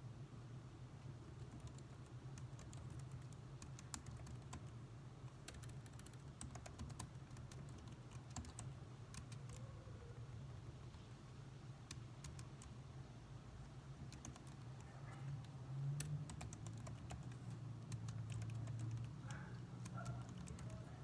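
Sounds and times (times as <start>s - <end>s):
low background hum: 0.0s - 21.0s
typing on keyboard: 1.2s - 9.7s, 11.9s - 12.8s, 14.0s - 21.0s.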